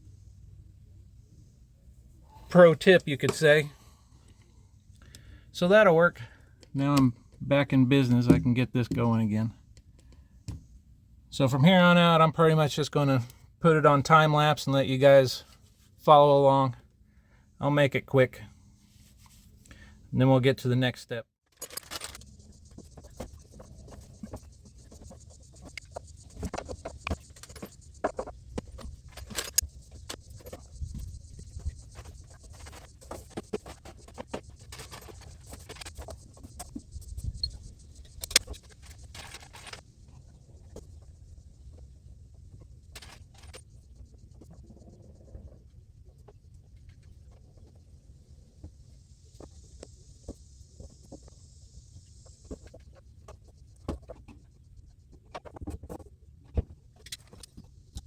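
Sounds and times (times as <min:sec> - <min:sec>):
tools clicking and scraping on pipe: 0:21.6 - 0:39.8.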